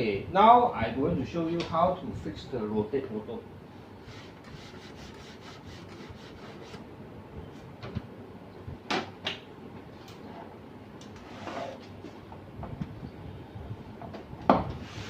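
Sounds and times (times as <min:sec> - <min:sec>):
faint steady background noise: 0:00.0 - 0:15.0
short scrape: 0:11.2 - 0:11.9, 0:14.8 - 0:15.0.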